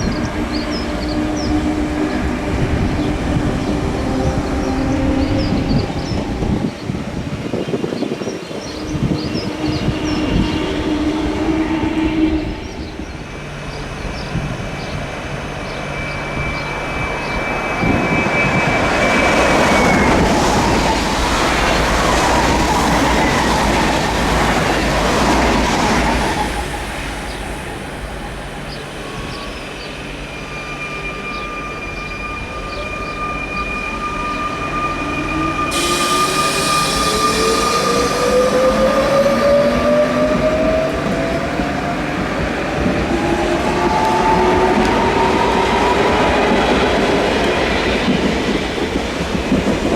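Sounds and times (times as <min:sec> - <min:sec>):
train passing on rails: 0:00.0 - 0:49.9
train motors whining rising pitch: 0:09.0 - 0:48.6.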